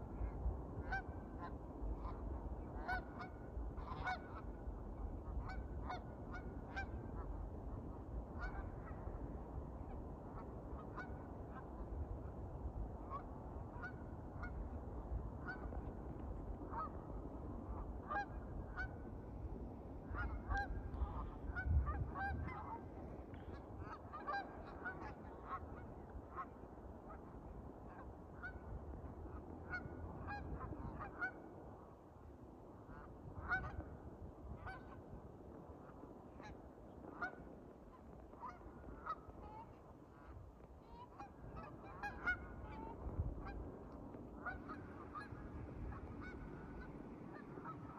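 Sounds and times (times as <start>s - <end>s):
geese honking: 0.8s - 4.6s, 5.2s - 7.3s, 8.4s - 9.2s, 10.4s - 11.6s, 13.1s - 14.7s, 17.7s - 19.1s, 20.1s - 22.9s, 23.8s - 26.5s, 32.9s - 33.8s, 37.2s - 37.4s, 38.3s - 43.6s, 44.4s - 47.9s.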